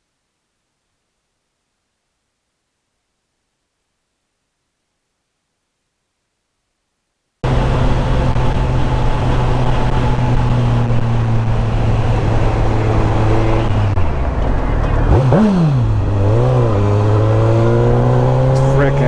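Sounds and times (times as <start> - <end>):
motorcycle engine revving: 7.4 - 14.2, 14.8 - 19.0
wind rush: 7.4 - 15.1.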